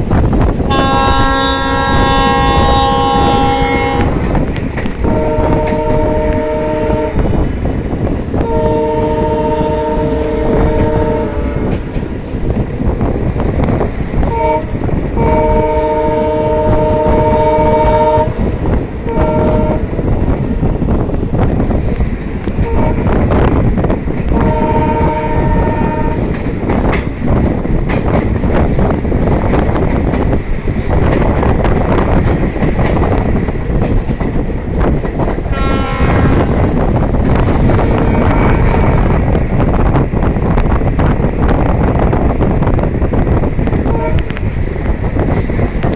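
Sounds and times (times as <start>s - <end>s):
multi-tone vehicle horn blasts: 0.7s - 4.2s, 8.4s - 11.7s, 14.3s - 18.3s, 19.1s - 19.9s, 24.4s - 26.3s, 35.5s - 36.5s, 43.9s - 44.3s.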